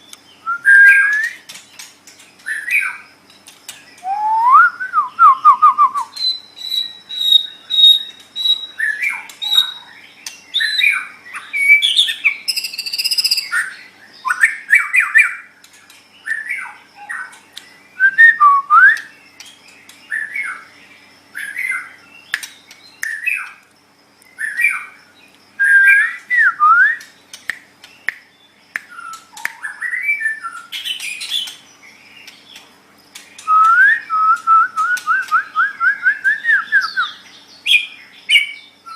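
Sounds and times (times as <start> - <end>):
bird singing varied song: 0.0 - 38.9.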